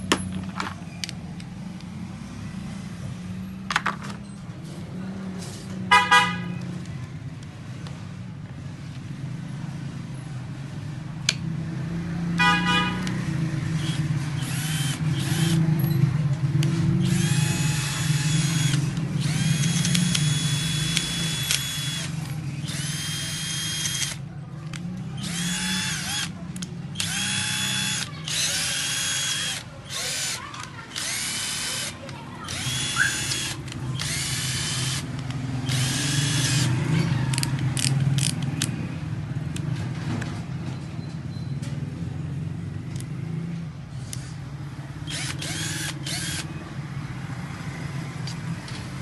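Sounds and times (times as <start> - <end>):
car horn honks: 5.9 - 6.6, 12.4 - 13.2
cordless drill motor whining: 13.8 - 15.6, 17.0 - 24.2, 25.2 - 26.3, 27.0 - 36.7, 45.1 - 46.5.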